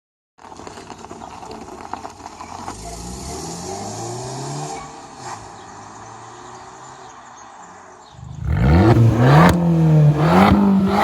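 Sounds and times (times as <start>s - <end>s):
car engine accelerating: 8.2s - 11.0s.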